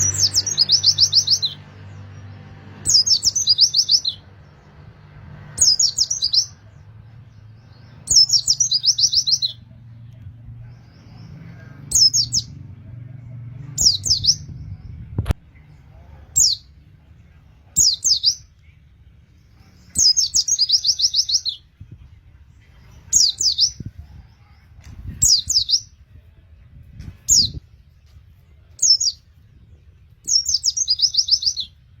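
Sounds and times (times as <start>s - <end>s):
bird chirping and trilling: 0.0s - 4.6s, 5.6s - 9.6s, 11.9s - 12.6s, 13.8s - 15.0s, 17.8s - 18.5s, 19.8s - 21.7s, 23.0s - 24.0s, 25.2s - 26.0s, 27.2s - 27.7s, 28.8s - 29.3s, 30.2s - 31.9s.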